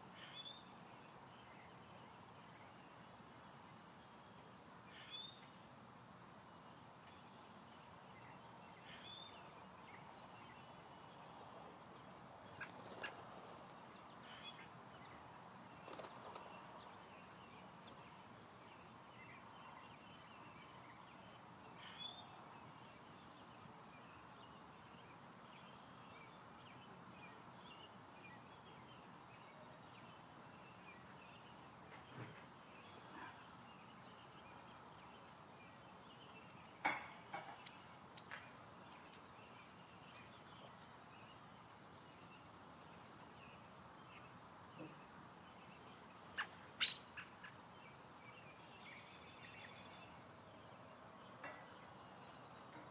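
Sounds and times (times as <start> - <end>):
high bird chirps: 46.4 - 47.3.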